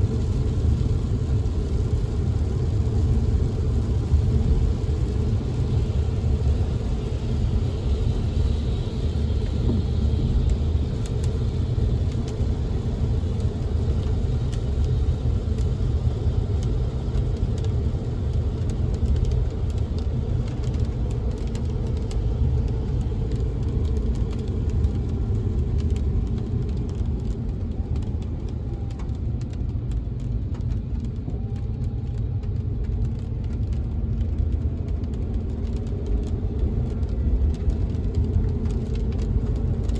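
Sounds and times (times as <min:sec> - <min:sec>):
car rumbling on road: 0:00.0 - 0:15.5
raindrops tapping on window: 0:00.1 - 0:39.9.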